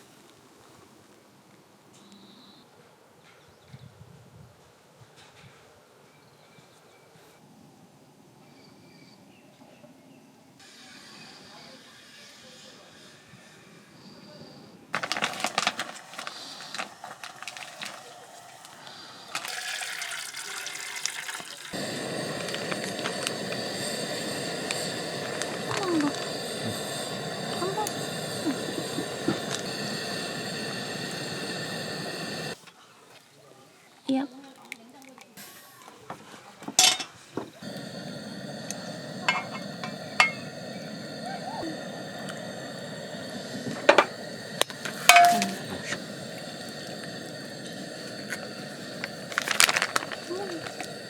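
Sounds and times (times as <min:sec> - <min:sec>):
steady hiss: 0:15.0 - 0:32.7, 0:35.4 - 0:51.0
tableware clinking: 0:36.8 - 0:37.2, 0:39.3 - 0:40.6, 0:45.0 - 0:45.8.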